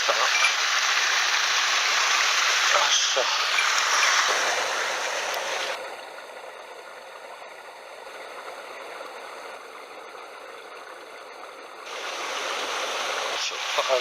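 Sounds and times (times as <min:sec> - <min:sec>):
mountain stream rushing: 0:00.0 - 0:06.4, 0:11.8 - 0:14.0.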